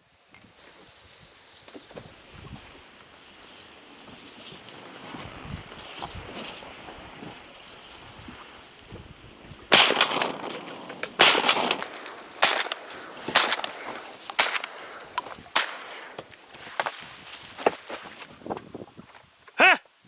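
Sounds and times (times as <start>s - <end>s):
sharp bangs: 9.7s - 16.3s.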